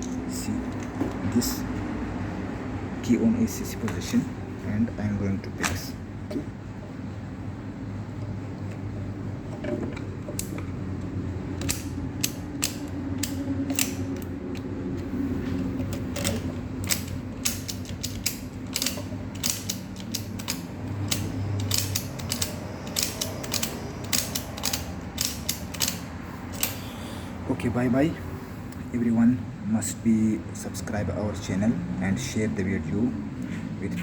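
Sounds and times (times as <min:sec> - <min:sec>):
key clicking in ignition lock: 0:11.6 - 0:14.7, 0:15.6 - 0:26.8.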